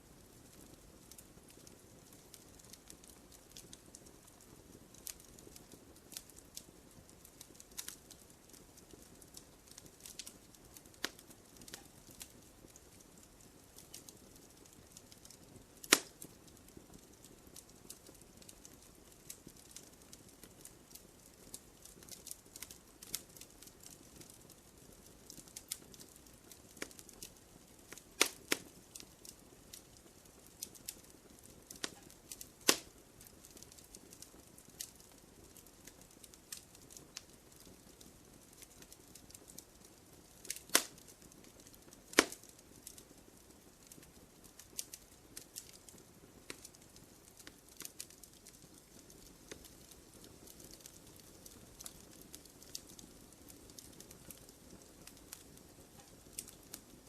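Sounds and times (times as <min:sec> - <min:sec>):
wood fire crackling: 0:00.0 - 0:57.0
fire hiss: 0:30.6 - 0:33.8, 0:42.1 - 0:43.0.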